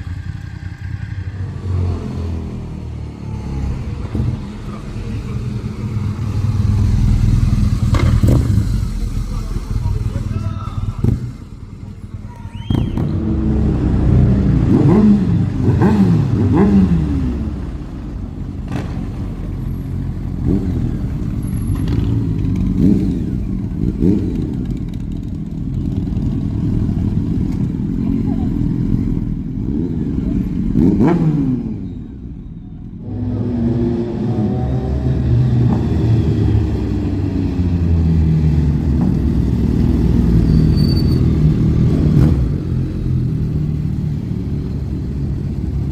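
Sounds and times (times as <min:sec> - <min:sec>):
motorcycle engines revving: 0:00.0 - 0:45.9.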